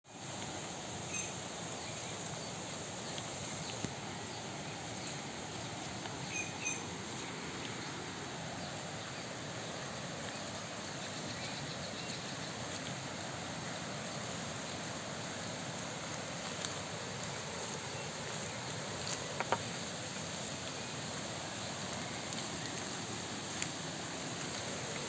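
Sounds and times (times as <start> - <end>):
rain falling: 0.4 - 25.0.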